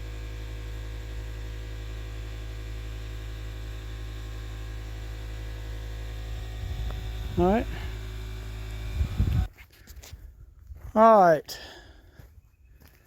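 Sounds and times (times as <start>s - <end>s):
low electrical hum: 0.0s - 9.5s.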